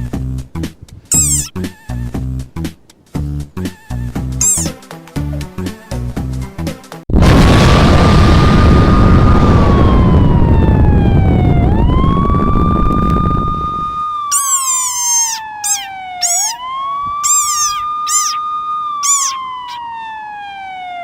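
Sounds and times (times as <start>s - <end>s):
siren wailing: 1.1s - 1.5s, 4.4s - 4.8s, 8.2s - 21.0s
short high squeaky chirps: 1.1s - 1.6s, 4.4s - 4.8s, 14.3s - 16.6s, 17.2s - 19.9s
loud burst of noise: 7.2s - 11.1s.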